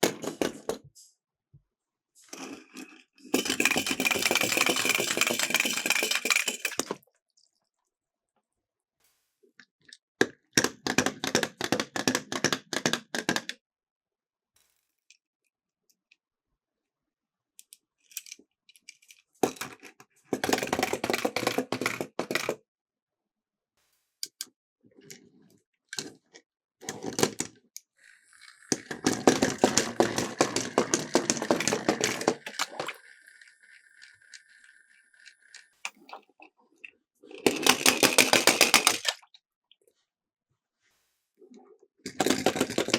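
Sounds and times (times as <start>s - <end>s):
toy cars rattling down plastic slope: 2.2s - 7.0s, 18.2s - 22.6s, 26.9s - 36.5s, 37.2s - 39.3s, 42.1s - 42.9s.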